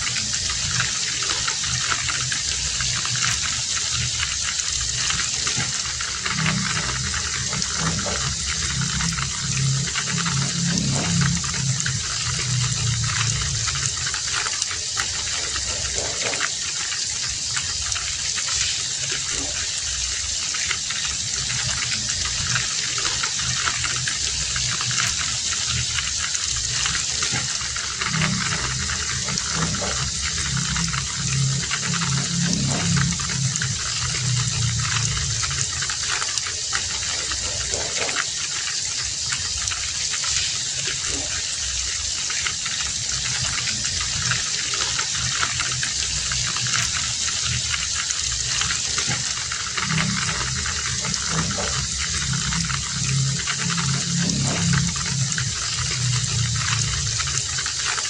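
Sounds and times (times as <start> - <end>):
heavy rain falling: 0.0 - 58.0
low rumble: 4.8 - 16.0, 24.2 - 36.1, 45.8 - 57.7.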